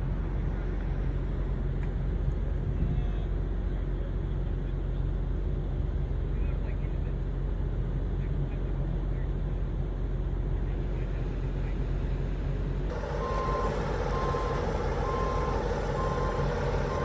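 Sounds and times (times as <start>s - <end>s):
diesel truck engine running: 0.0s - 17.0s
reversing alarm beeping: 12.9s - 17.0s.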